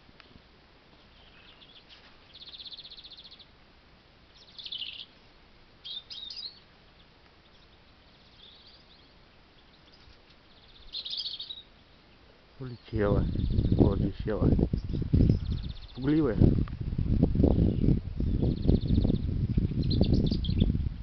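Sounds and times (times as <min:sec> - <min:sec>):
robin singing: 0:01.0 - 0:03.6, 0:04.3 - 0:16.6, 0:17.4 - 0:21.0
bird trilling fast: 0:07.5 - 0:11.7.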